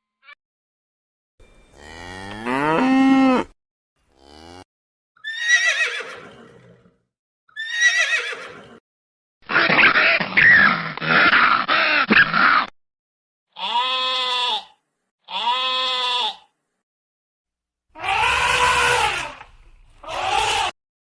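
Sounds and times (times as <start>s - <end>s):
cow mooing: 1.6s - 3.5s, 4.1s - 4.7s, 18.0s - 19.5s
horse whinnying: 5.2s - 6.9s, 7.5s - 8.8s, 18.0s - 20.7s
rough animal call: 18.0s - 20.8s.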